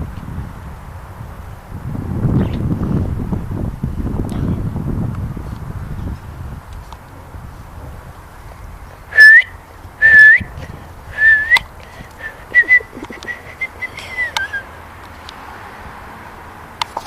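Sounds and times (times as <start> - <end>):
whistled notes flicking upward: 9.1 - 10.5, 11.2 - 11.7, 12.5 - 14.6.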